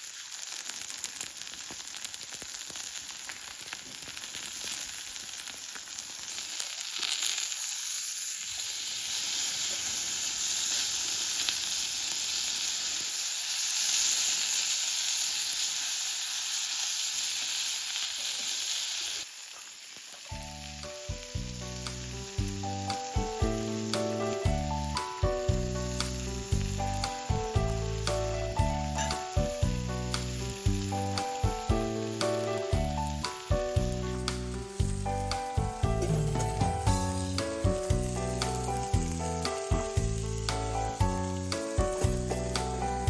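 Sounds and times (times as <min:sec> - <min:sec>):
food sizzling: 0:00.0 - 0:43.0
background music with steady beat: 0:20.8 - 0:43.0.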